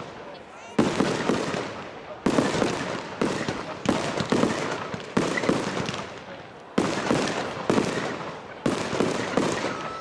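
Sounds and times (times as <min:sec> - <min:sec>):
fireworks bursting with echo: 0:00.0 - 0:10.0.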